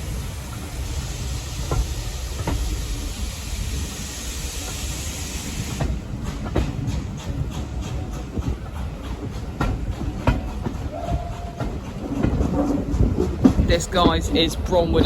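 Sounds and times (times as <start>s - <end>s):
steam hissing: 0.0s - 15.0s
steam train rumbling: 0.0s - 15.0s
wheels clicking: 5.6s - 15.0s.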